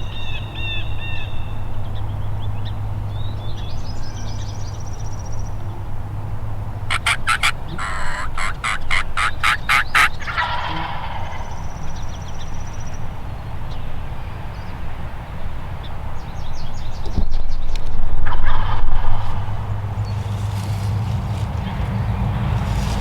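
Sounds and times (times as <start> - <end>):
turkey yelping: 6.9 - 11.6.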